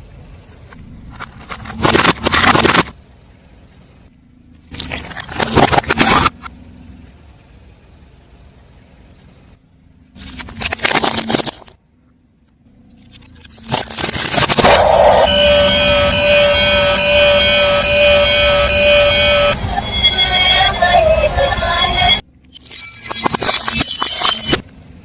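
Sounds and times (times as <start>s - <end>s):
tyre crushing crunchy objects: 1.1s - 2.9s
low vehicle rumble: 14.2s - 22.3s.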